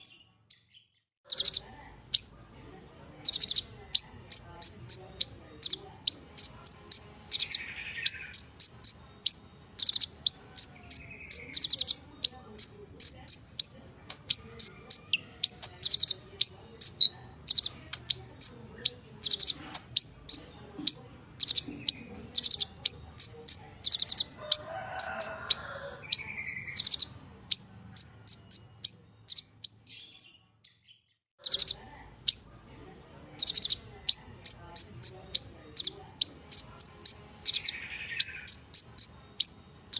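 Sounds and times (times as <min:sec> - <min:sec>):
bird chirping and trilling: 0:00.0 - 0:02.6, 0:03.2 - 0:32.7, 0:33.3 - 0:39.9.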